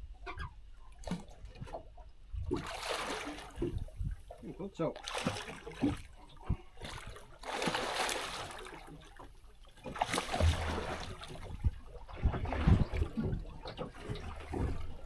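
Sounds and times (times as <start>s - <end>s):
sharp knocks on boat: 2.4s - 4.2s, 5.0s - 15.0s
fish splashing water: 2.6s - 4.1s, 5.0s - 15.0s.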